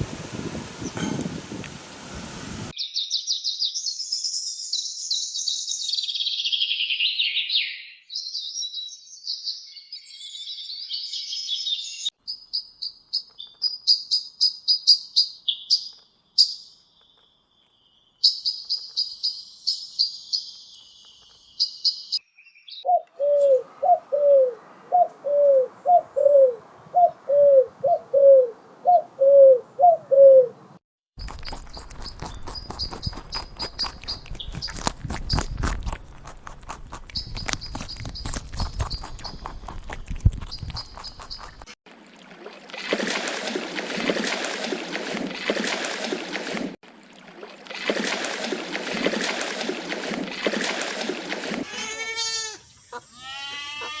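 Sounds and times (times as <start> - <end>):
sharp high bird chirps: 2.8 - 24.2
birds twittering: 17.8 - 30.8
down-curving bird call: 22.8 - 30.6.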